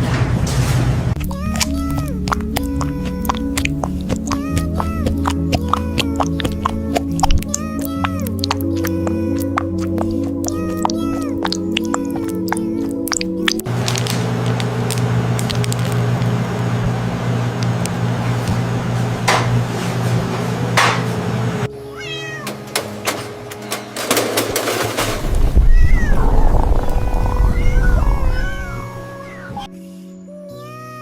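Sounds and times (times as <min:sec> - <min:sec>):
music with held low notes: 0:01.2 - 0:25.6
cat meowing: 0:21.8 - 0:22.6, 0:25.6 - 0:29.7.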